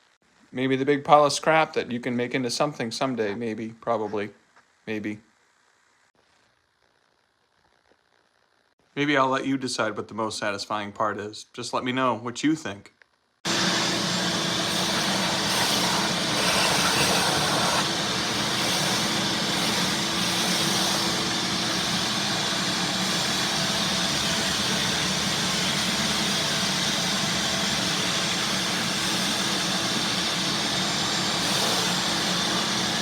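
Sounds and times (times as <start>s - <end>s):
vacuum cleaner running: 13.5s - 33.0s.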